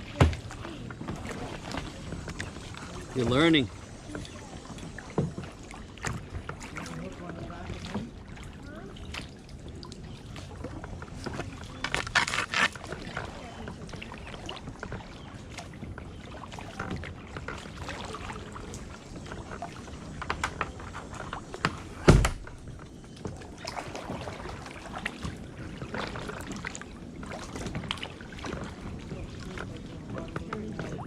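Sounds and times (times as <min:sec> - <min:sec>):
paddle strokes splashing water: 0:00.0 - 0:31.0
loud thump: 0:22.0 - 0:22.5.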